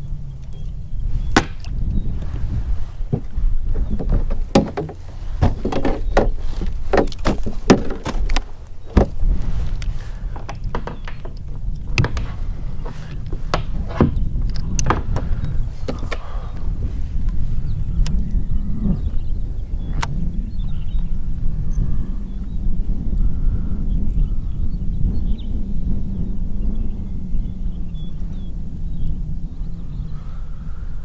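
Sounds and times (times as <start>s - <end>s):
wind rumbling on microphone: 0.0s - 31.0s
knocks and clunks against kayak: 3.1s - 9.5s, 10.3s - 16.4s.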